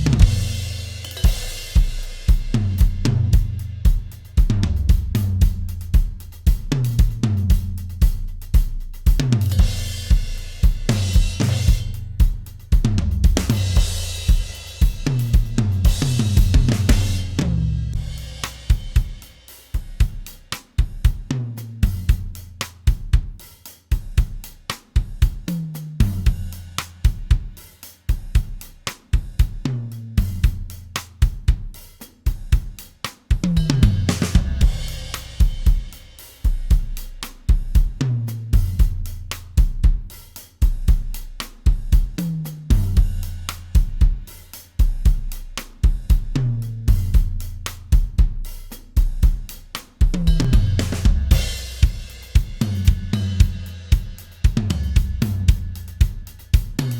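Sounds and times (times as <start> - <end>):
crash cymbal and toms: 0.0 - 6.4, 13.4 - 21.0, 33.6 - 37.8, 48.5 - 56.9
drum kit groove: 0.0 - 56.9.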